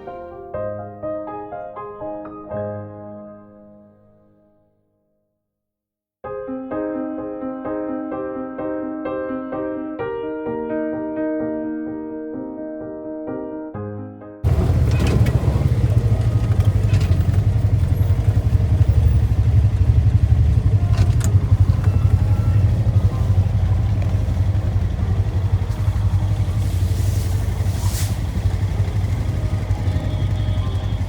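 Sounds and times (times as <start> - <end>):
atv engine rumbling: 14.4 - 31.0.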